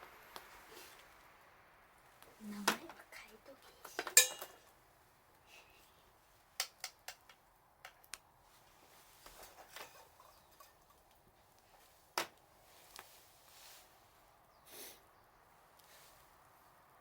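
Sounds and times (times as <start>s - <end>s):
sharp clicks and light knocks: 6.6s - 8.3s.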